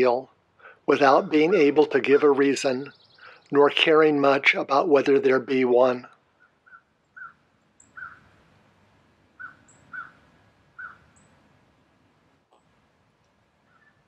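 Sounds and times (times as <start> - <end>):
faint high bird chirps: 2.0 - 3.6, 6.4 - 8.3, 9.4 - 10.2, 10.8 - 11.4, 13.6 - 14.0.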